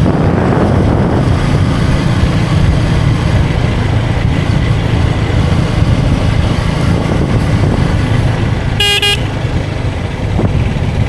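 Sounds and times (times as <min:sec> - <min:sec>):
motorcycle engine at speed: 0:00.0 - 0:11.0
wind rush: 0:00.0 - 0:11.0
vehicle horn toot: 0:08.8 - 0:09.5.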